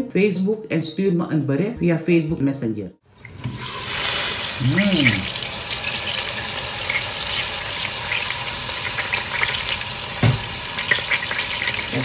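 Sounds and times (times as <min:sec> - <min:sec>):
sausage and onions sizzling: 0:03.1 - 0:12.0.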